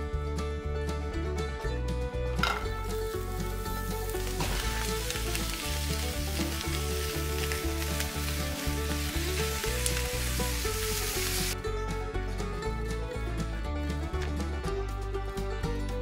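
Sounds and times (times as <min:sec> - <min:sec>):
meat and onions sizzling: 0:02.4 - 0:11.6.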